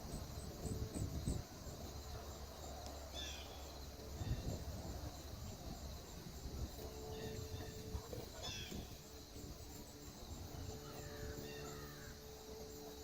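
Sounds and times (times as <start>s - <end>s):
faint low hum: 0.0s - 13.0s
bird chirping: 6.9s - 12.9s.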